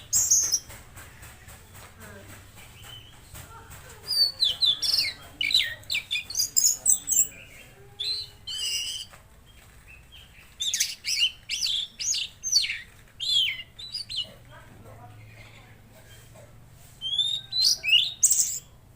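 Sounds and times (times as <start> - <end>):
songbird chirping: 0.0 - 18.9.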